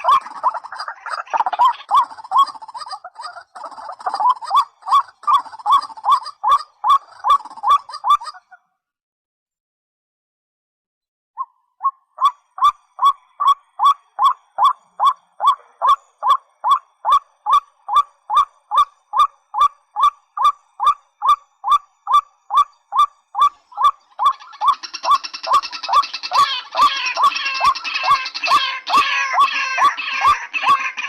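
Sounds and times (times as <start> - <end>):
rail bird repeated call: 11.8 - 31.0.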